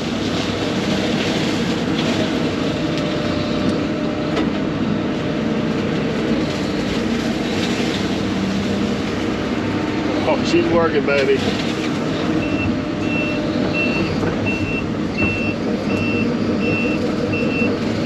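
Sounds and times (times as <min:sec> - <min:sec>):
brush mower cutting brush: 0:00.0 - 0:03.7, 0:06.2 - 0:12.4
excavator diesel engine running: 0:00.0 - 0:18.0.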